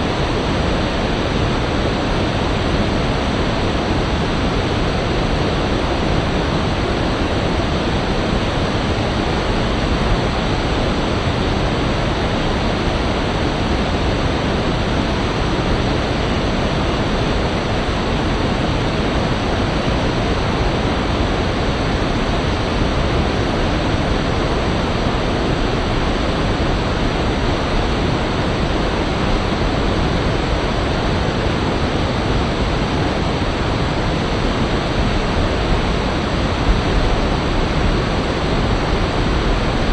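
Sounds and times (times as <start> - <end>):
rushing river whitewater: 0.1 - 39.9.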